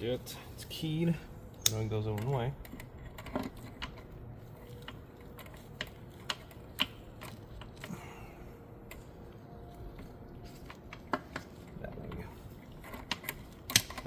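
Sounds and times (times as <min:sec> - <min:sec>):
metal parts clicking and clinking: 0:09.9 - 0:14.0.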